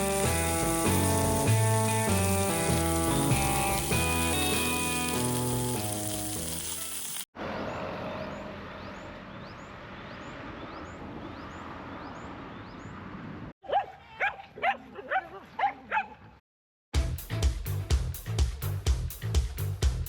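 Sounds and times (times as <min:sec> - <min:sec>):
steady hiss: 0:00.0 - 0:07.3
dog barking: 0:13.6 - 0:16.3.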